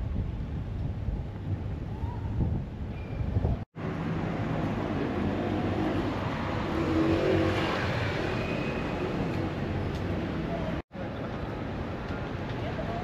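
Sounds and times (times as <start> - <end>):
vehicle engine and road noise: 2.7 - 13.0.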